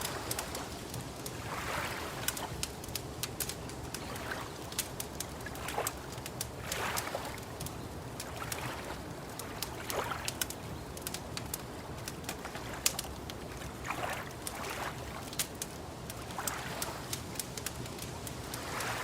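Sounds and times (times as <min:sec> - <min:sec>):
low background hiss: 0:00.0 - 0:19.0
wood fire crackling: 0:00.0 - 0:19.0.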